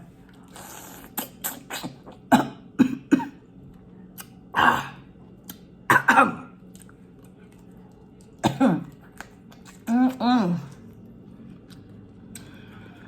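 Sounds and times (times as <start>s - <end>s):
woman clearing her throat: 2.3s - 3.4s, 5.9s - 6.5s, 8.4s - 9.0s
woman coughing: 2.3s - 3.4s, 5.9s - 6.5s, 8.4s - 8.9s.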